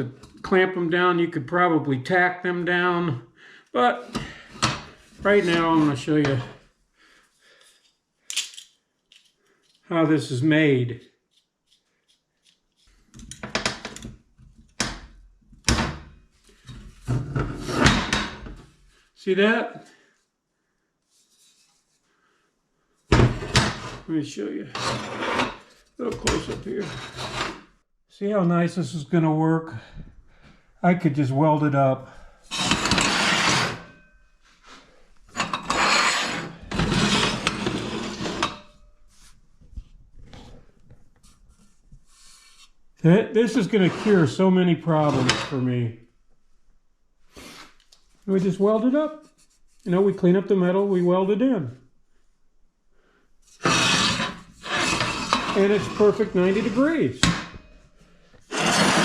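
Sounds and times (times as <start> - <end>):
steel pieces clanking and scraping: 24.7 - 27.7, 32.5 - 34.1, 35.3 - 38.8, 45.1 - 45.6, 53.6 - 59.0.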